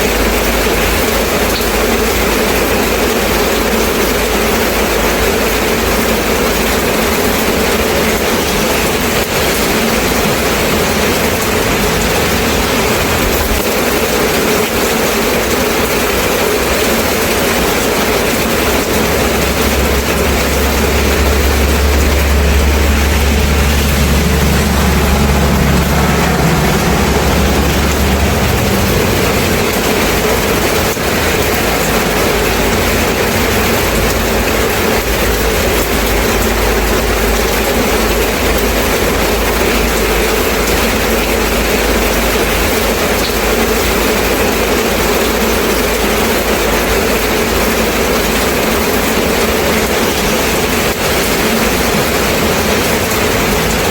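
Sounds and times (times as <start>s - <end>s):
rain falling: 0.0s - 53.9s
low rumble: 7.8s - 14.9s, 16.7s - 37.8s.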